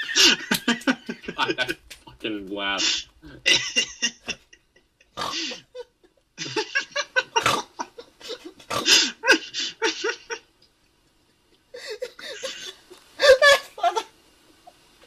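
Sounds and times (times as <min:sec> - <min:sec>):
man making laughter-like noises: 0:00.0 - 0:01.9, 0:02.8 - 0:10.4, 0:11.8 - 0:14.1.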